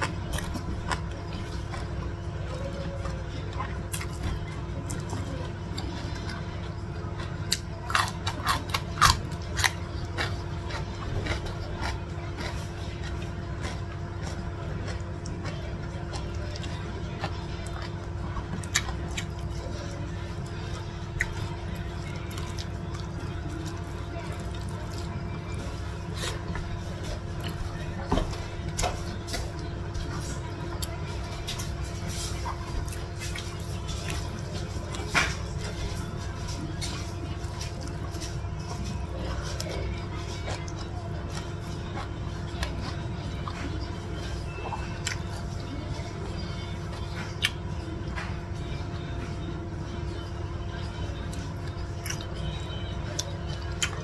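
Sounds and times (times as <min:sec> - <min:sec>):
person chewing food: 0:00.0 - 0:49.1, 0:50.8 - 0:54.0
low background hum: 0:00.0 - 0:54.0
cucumber being bitten and chewed: 0:07.2 - 0:20.5, 0:44.5 - 0:45.3, 0:47.4 - 0:47.6, 0:51.3 - 0:54.0.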